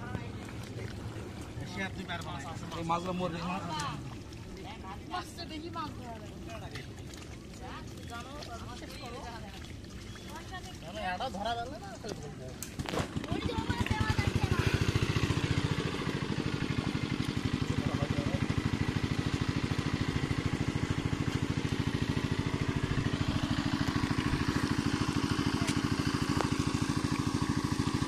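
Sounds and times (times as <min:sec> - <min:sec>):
pump engine thudding: 0:12.7 - 0:28.0.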